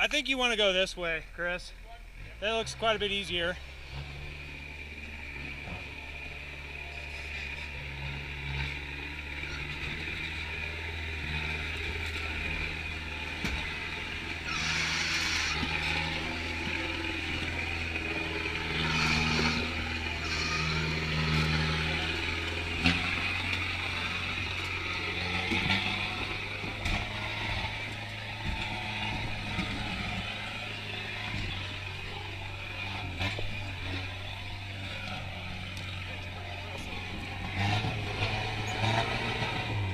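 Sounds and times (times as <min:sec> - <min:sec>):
diesel engine crawling at low revs: 0:00.0 - 0:39.9
bursts of high-pitched noise: 0:14.4 - 0:16.0.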